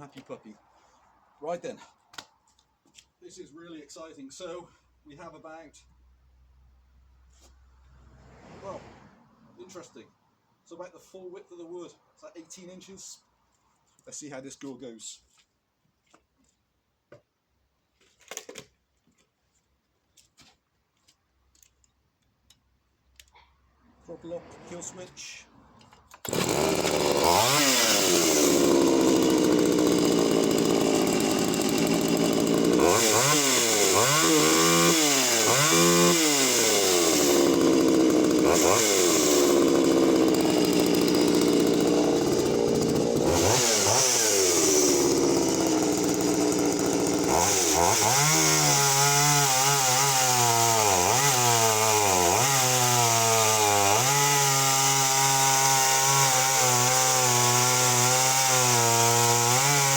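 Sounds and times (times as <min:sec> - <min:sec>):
chainsaw cutting through log: 0:26.1 - 0:59.9.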